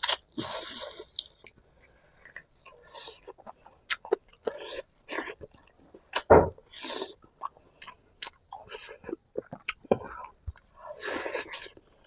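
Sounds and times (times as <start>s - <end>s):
close chewing and biting: 2.2s - 6.3s, 7.0s - 12.0s.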